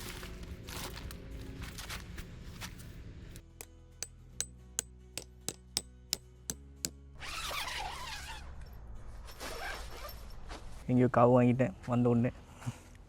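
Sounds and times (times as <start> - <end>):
ringing metal strikes: 3.6 - 7.0.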